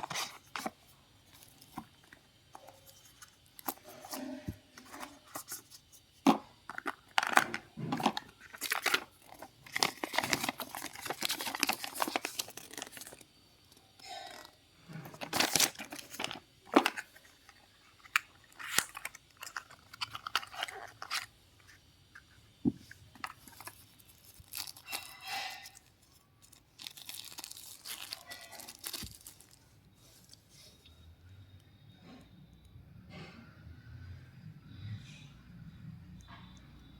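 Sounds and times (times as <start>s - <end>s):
packaging clicks and taps: 0.0s - 13.2s
packaging tearing and crinkling: 6.7s - 13.3s, 14.0s - 21.3s, 23.2s - 29.6s.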